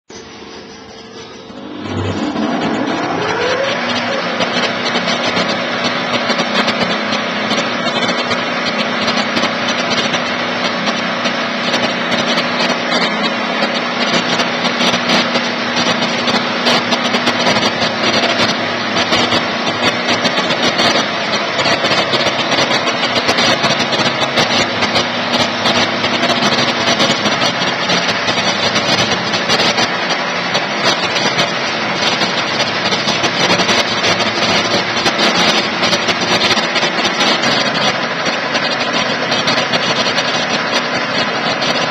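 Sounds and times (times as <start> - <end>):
low hum: 0.1 - 6.8
electric sawmill running: 0.1 - 41.9
dense crackle: 0.4 - 41.9.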